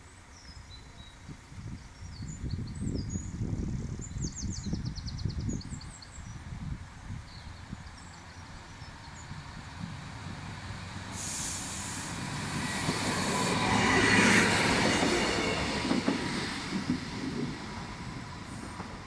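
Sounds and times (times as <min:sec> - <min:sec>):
diesel train passing: 0:06.0 - 0:19.0.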